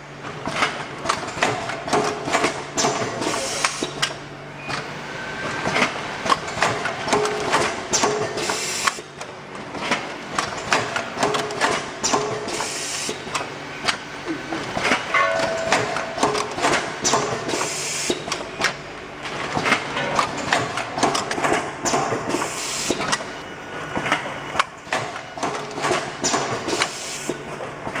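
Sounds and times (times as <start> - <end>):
mechanical clicks and clacks: 5.6 - 12.7, 14.7 - 23.2.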